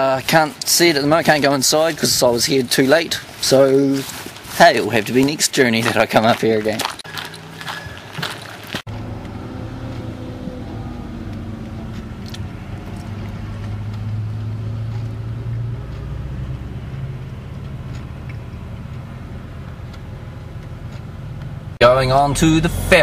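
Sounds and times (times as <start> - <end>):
road noise: 0.0 - 23.0
car engine running low: 7.0 - 23.0.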